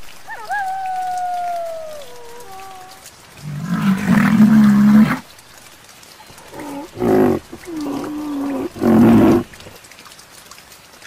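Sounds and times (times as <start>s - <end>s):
rhinoceros calling: 6.3s - 9.8s.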